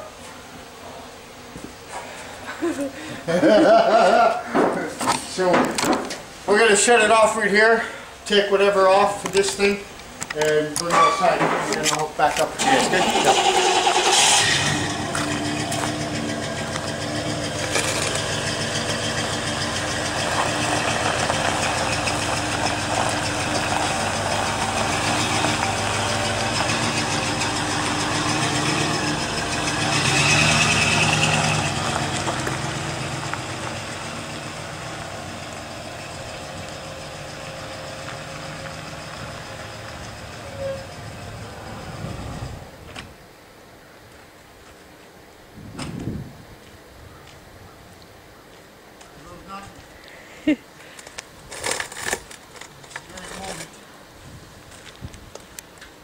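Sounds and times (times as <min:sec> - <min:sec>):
vehicle engine running: 0:12.6 - 0:42.8.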